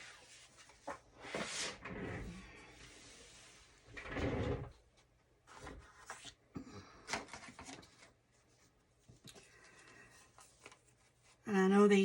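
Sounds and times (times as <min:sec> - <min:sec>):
paper rustling: 0:05.5 - 0:06.4, 0:07.1 - 0:11.4.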